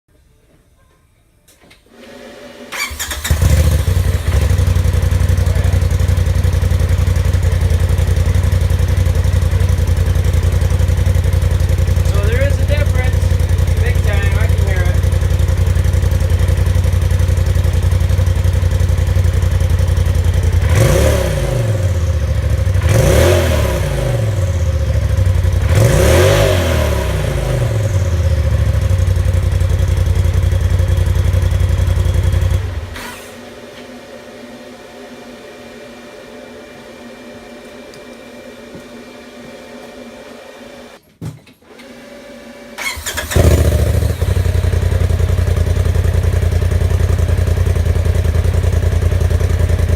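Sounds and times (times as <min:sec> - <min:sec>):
engine idling and revving: 0:02.8 - 0:33.5, 0:42.8 - 0:49.9.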